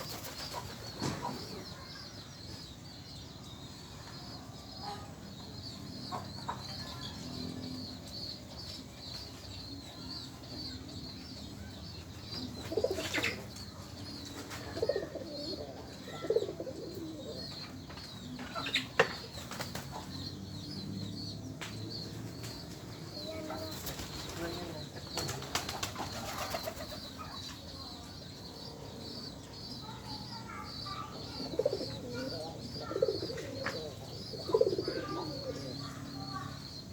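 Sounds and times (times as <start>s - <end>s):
pigeons flapping wings: 0.0s - 1.0s, 23.6s - 27.0s
pigeons cooing: 12.4s - 17.6s, 23.2s - 27.4s, 28.9s - 36.5s.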